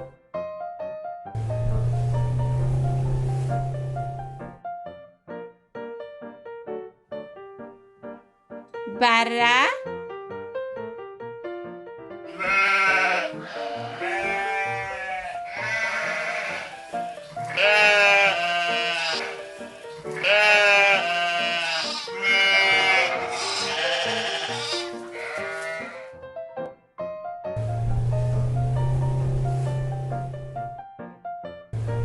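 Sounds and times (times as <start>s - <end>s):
light background music: 0.0s - 32.0s
lamb bleating: 12.3s - 26.1s.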